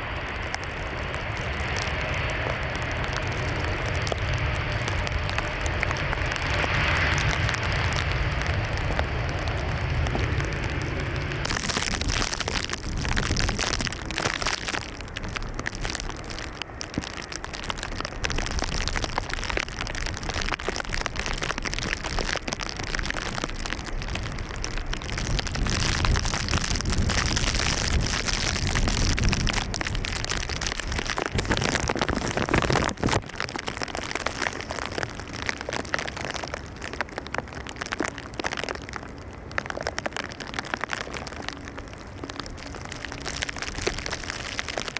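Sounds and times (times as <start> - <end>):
jet engine roar: 0.0 - 11.5
fluctuating low rumble: 0.0 - 44.9.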